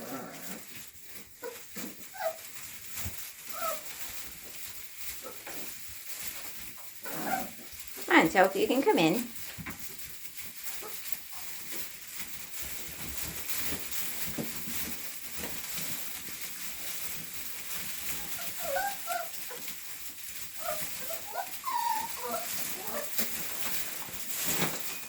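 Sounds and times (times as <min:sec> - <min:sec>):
small rustling clicks: 0:00.0 - 0:25.0
puppies whimpering: 0:18.0 - 0:19.7, 0:20.3 - 0:23.4.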